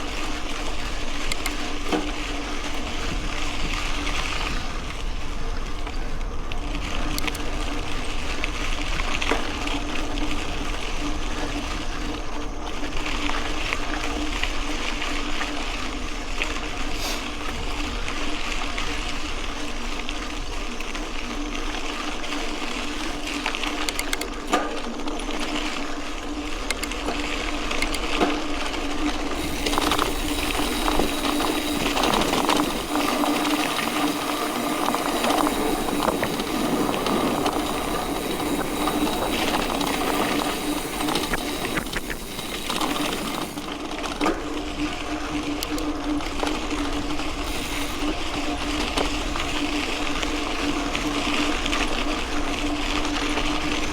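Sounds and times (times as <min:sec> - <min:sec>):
bike rattles and clicks: 0:00.0 - 0:53.9
steady hum: 0:28.8 - 0:43.9
tyres on gravel: 0:29.3 - 0:43.8.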